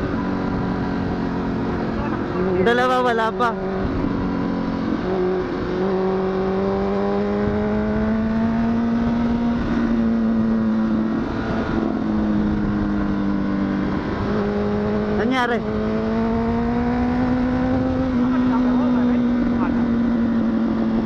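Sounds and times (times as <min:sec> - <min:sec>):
wind rush over microphone: 0:00.0 - 0:18.5
motorcycle engine cruising: 0:00.0 - 0:21.0.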